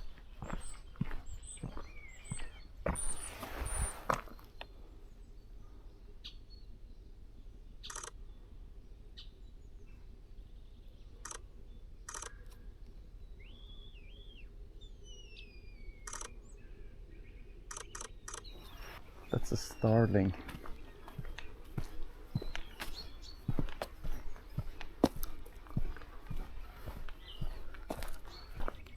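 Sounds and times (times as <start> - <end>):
small birds chirping: 0.0 - 28.9
rustle: 3.0 - 4.6.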